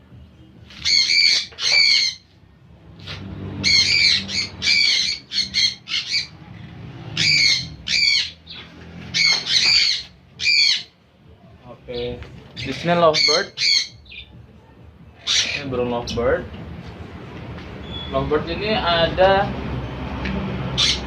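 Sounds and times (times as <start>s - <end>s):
parrots squawking: 0.7s - 2.4s, 3.0s - 11.0s, 12.6s - 14.3s, 15.1s - 15.9s, 20.7s - 21.0s.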